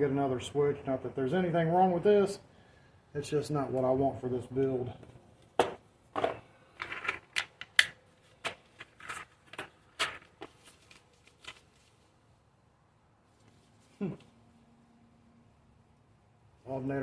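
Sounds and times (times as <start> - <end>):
plastic packaging crinkling: 8.2 - 12.1.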